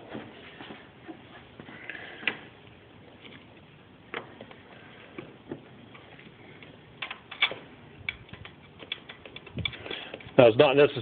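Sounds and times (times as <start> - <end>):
tools and metal parts clicking: 7.0 - 10.5.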